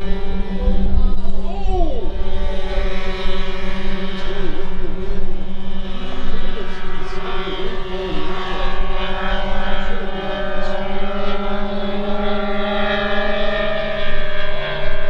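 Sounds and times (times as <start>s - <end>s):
faint voices: 0.0s - 13.4s
model plane engines droning: 0.0s - 15.0s.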